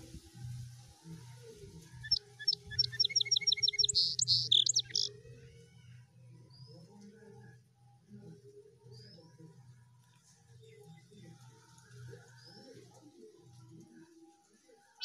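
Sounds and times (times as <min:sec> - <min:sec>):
bird chirping: 0:02.0 - 0:05.2.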